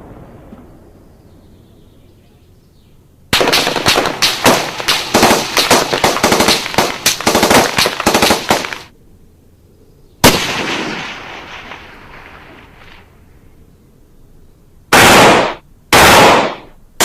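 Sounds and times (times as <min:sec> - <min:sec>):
rapid automatic gunfire: 0:03.4 - 0:08.9, 0:15.0 - 0:16.6
loud gunshot with echo: 0:10.2 - 0:11.8, 0:14.9 - 0:16.7.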